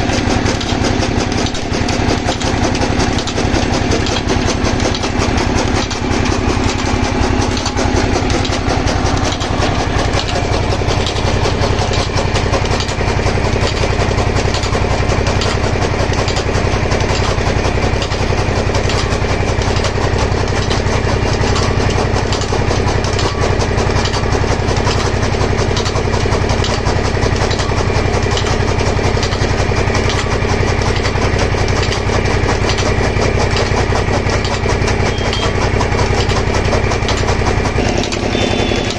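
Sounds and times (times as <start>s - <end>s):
pump engine running: 0.0s - 38.9s.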